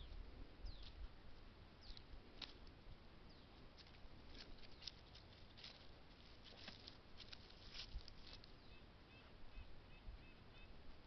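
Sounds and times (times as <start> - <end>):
faint ticks and crackles: 0.0 - 8.6.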